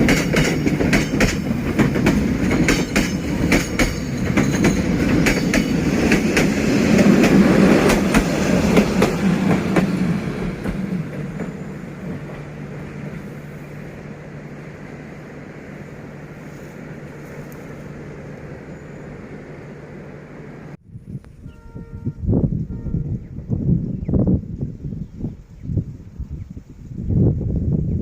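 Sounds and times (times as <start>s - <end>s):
wheels clicking over rail joints: 0.0s - 12.5s
train passing on rails: 0.0s - 20.8s.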